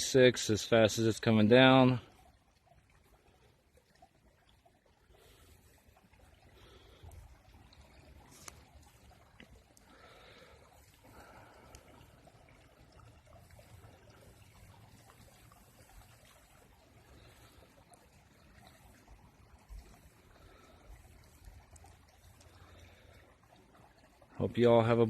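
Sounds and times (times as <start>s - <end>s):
faint outdoor hiss: 5.0s - 25.0s.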